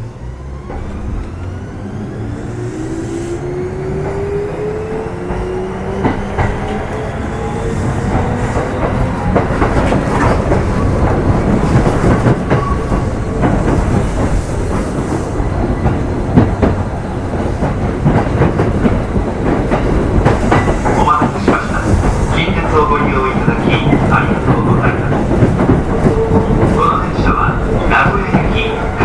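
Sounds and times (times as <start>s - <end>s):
train running rumble: 0.0s - 29.0s
rail-joint clacks: 5.2s - 7.0s, 7.6s - 29.0s.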